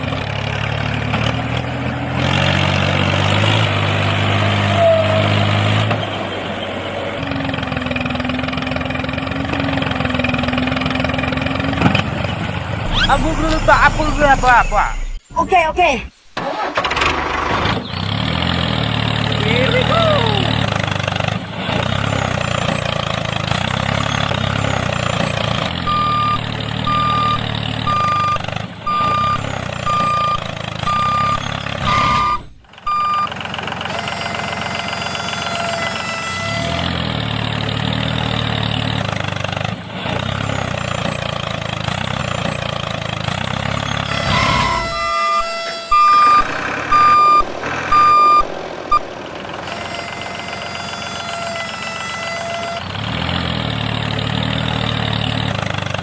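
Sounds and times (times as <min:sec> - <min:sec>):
small vehicle engine running: 0:00.0 - 0:15.2, 0:16.4 - 0:56.0
reverse warning beeper: 0:12.8 - 0:15.6, 0:23.9 - 0:33.4, 0:43.9 - 0:50.2.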